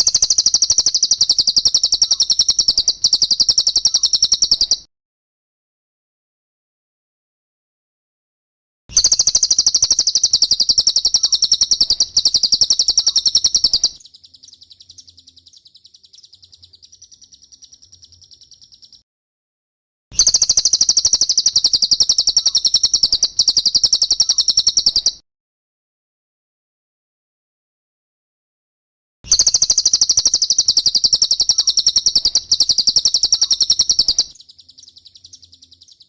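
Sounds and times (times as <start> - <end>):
bird high-pitched rattling trill: 0.0 - 4.9, 8.9 - 19.0, 20.2 - 25.2, 29.3 - 36.0.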